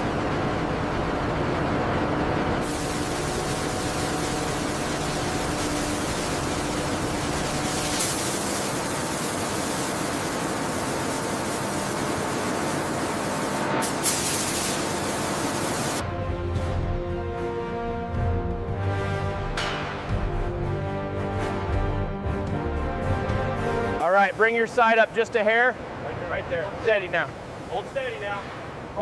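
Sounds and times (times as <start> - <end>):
paint spray gun hissing: 2.6 - 16.0
music: 16.0 - 24.0.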